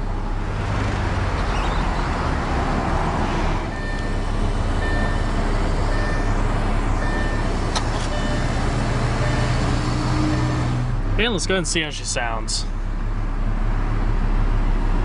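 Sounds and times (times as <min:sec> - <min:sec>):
car engine idling: 0:03.6 - 0:15.0
electronic warning chime beeping: 0:03.7 - 0:10.8.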